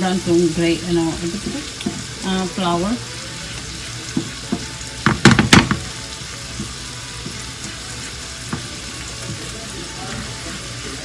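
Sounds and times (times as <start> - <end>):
sausage sizzling in a pan: 0.0 - 11.0
sharp knocks: 4.5 - 5.9.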